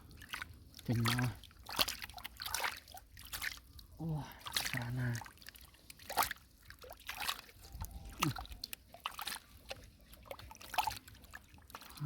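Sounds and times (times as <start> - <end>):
pond water sloshing and splashing: 0.0 - 12.0.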